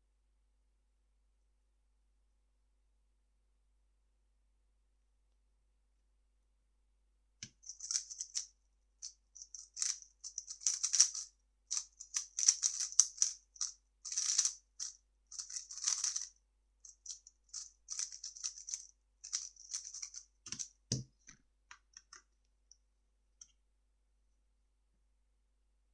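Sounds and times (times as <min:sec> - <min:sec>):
puzzle cube plastic clicking: 0:07.4 - 0:08.5, 0:09.4 - 0:16.3, 0:16.9 - 0:21.0.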